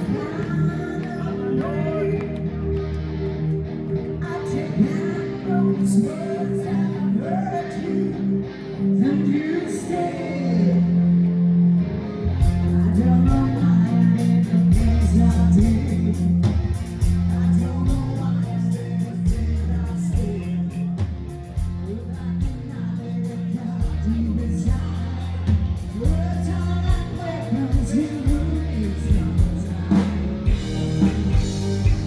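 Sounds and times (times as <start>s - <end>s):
person singing: 0.0s - 2.8s, 4.2s - 11.4s, 12.4s - 16.5s, 21.8s - 32.0s
rock band music: 0.0s - 32.0s
drums keeping a beat: 12.4s - 22.9s, 23.8s - 32.0s.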